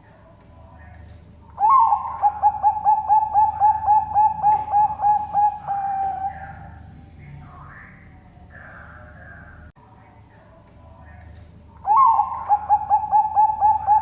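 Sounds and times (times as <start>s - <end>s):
dove cooing: 1.5s - 7.2s, 11.8s - 14.0s.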